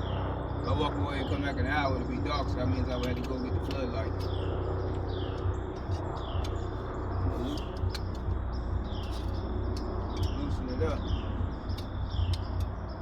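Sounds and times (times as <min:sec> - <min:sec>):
bird chirping: 0:00.0 - 0:13.0
steady low rumble: 0:00.0 - 0:13.0
light clicks: 0:07.4 - 0:08.4.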